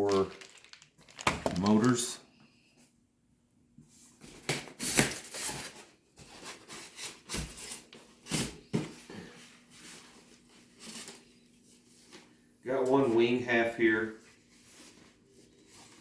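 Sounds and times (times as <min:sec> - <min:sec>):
packaging rustling and knocks: 0:00.0 - 0:02.1.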